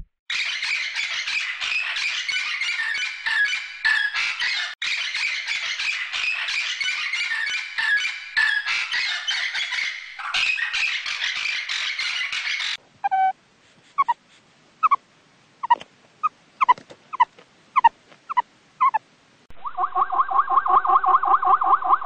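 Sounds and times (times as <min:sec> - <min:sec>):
meerkat chirping: 0:10.7 - 0:13.4, 0:14.0 - 0:14.2, 0:14.8 - 0:15.0, 0:15.6 - 0:19.0.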